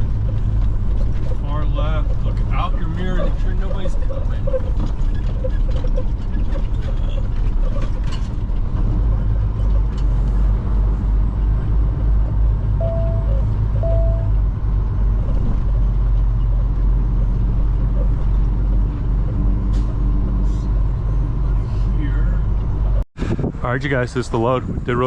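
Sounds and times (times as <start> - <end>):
diesel truck engine rumbling: 0.0 - 25.0
short beeps: 12.8 - 14.4.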